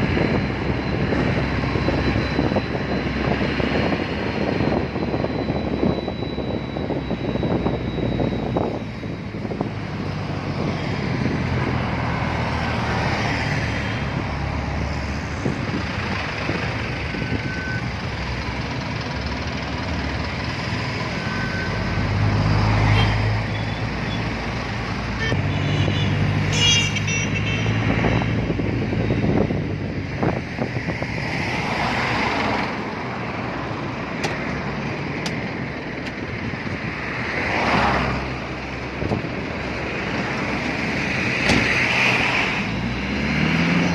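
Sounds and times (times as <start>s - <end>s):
vehicles passing: 0.0s - 43.9s
short high-pitched toot: 25.1s - 28.3s.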